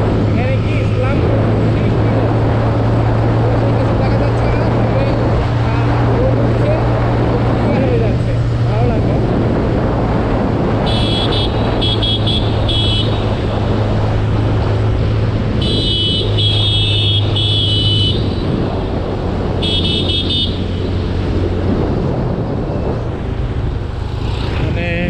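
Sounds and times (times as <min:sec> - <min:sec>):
motorcycle engine hum: 0:00.0 - 0:25.0
road and wind noise: 0:00.0 - 0:25.0
vehicle horn honking: 0:10.8 - 0:13.3, 0:15.6 - 0:18.5, 0:19.6 - 0:21.0.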